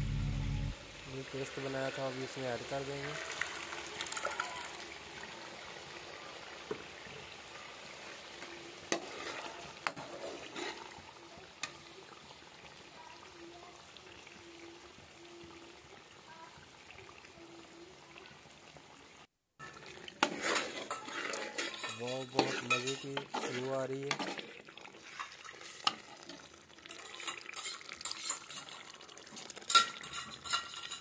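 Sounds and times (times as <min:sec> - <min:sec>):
food sizzling in a pot: 0:00.0 - 0:31.0
metal spoon clinking on pot: 0:20.5 - 0:24.4, 0:26.9 - 0:28.9, 0:29.6 - 0:31.0.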